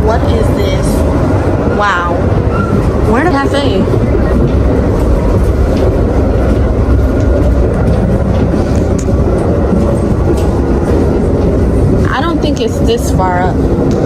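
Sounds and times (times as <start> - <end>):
moving passenger train rumble: 0.0 - 14.0.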